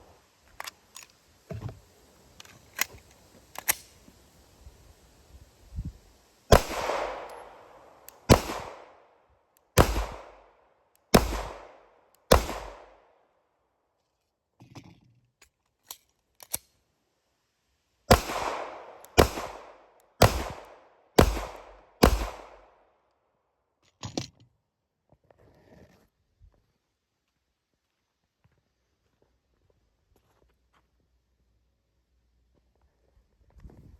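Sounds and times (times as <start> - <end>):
pistol shots: 6.5 - 9.0, 9.8 - 10.5, 11.1 - 13.0, 18.1 - 22.7.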